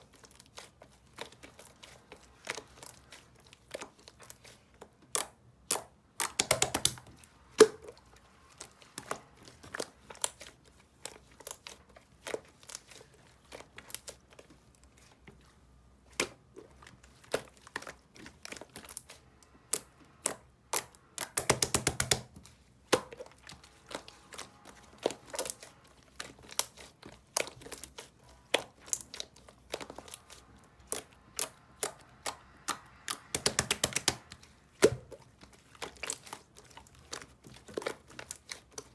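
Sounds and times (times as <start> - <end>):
handling taps and crinkles: 16.1 - 38.9.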